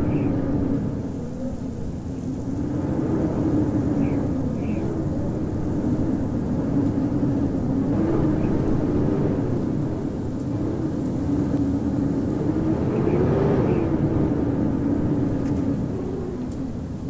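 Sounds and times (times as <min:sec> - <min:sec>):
howling wind: 0:00.0 - 0:17.0.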